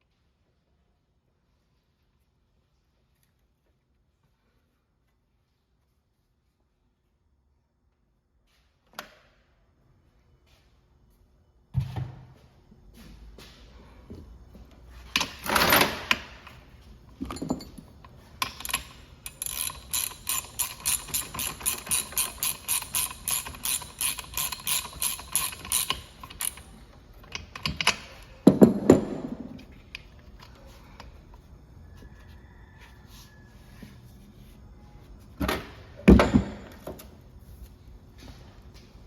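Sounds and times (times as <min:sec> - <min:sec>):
tools scraping and knocking: 0:15.0 - 0:31.0
ratchet wrench clicking: 0:18.4 - 0:28.2.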